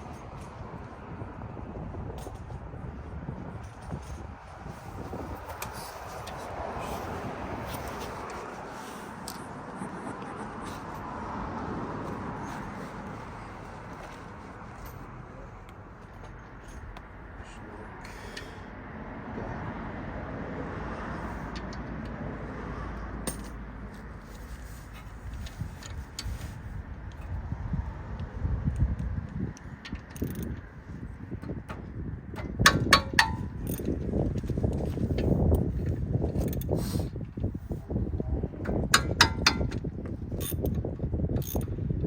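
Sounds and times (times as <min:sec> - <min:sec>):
steady outdoor rush: 0:00.0 - 0:42.0
low rumble: 0:09.2 - 0:14.0
metal tools clicking and clanking: 0:23.2 - 0:23.6, 0:29.9 - 0:30.6, 0:32.4 - 0:34.0, 0:38.6 - 0:39.8.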